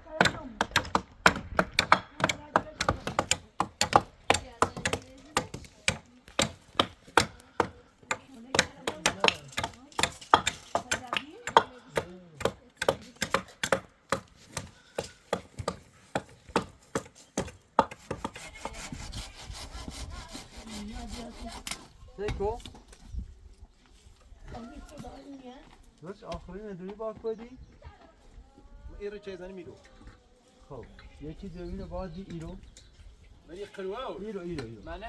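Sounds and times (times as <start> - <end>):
sharp blows on wood: 12.8 - 21.9
steady rasping: 17.4 - 21.9.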